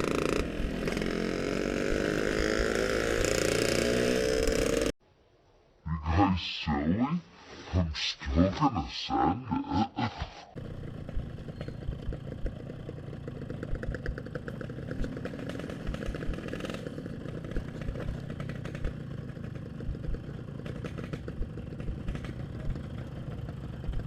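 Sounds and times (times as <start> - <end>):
two-stroke motorcycle engine running: 0.0 - 4.9, 10.6 - 24.0.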